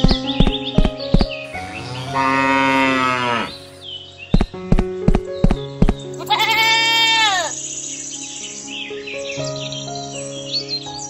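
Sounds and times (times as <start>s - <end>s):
cow mooing: 1.5s - 3.8s.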